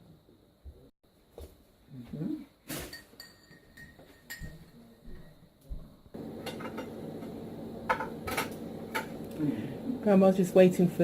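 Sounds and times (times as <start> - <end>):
kitchenware clinking: 2.7 - 4.8, 6.2 - 9.3
steady low hum: 5.2 - 11.0.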